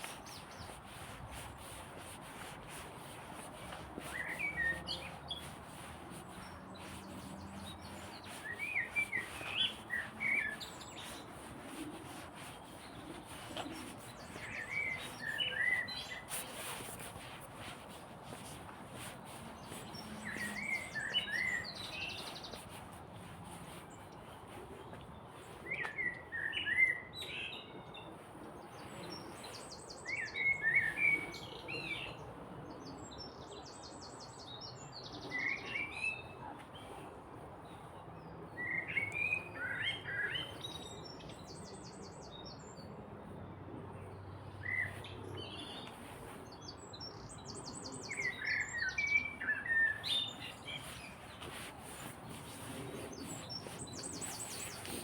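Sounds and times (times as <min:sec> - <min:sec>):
songbirds warbling: 0:44.6 - 0:55.0.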